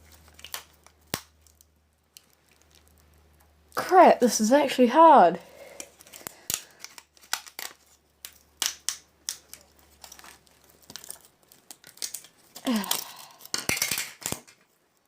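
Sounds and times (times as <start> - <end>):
phone parts cracking and snapping: 5.8 - 14.7.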